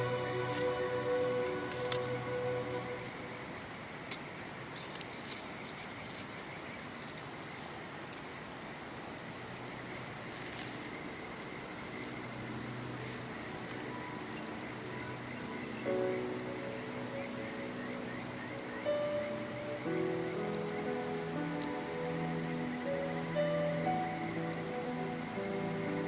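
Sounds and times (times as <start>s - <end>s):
high-pitched insect trill: 0.0s - 3.7s, 9.9s - 26.0s
soft background music: 0.0s - 3.8s, 9.7s - 26.0s
campfire crackles: 0.0s - 26.0s.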